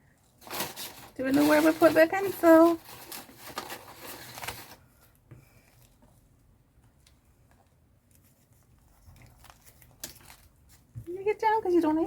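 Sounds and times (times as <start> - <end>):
paper rustling: 0.3 - 5.0, 7.4 - 11.0.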